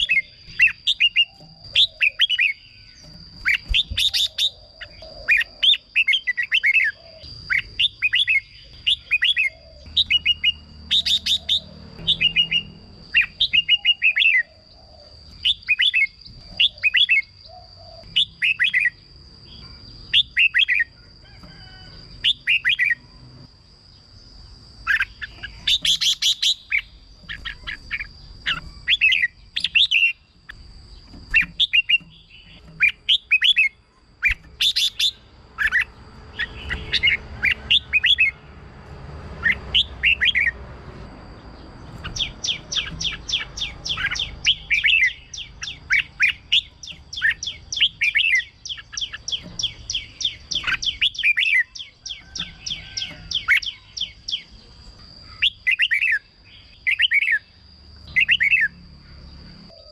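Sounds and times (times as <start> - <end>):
bird singing warbling phrases: 0.0 - 23.4, 24.4 - 38.5, 39.3 - 59.9.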